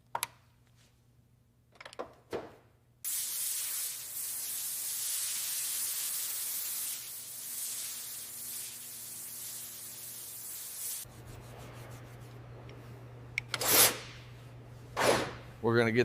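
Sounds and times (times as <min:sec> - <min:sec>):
high abrasive hiss: 0:03.1 - 0:11.0.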